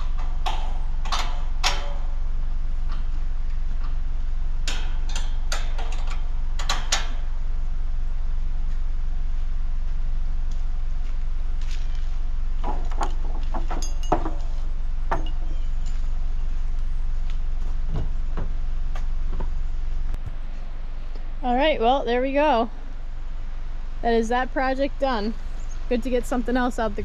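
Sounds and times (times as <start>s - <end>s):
knocks and rattles: 0.0s - 2.2s, 4.6s - 7.2s, 12.6s - 16.0s
engine rumbling: 0.0s - 27.0s.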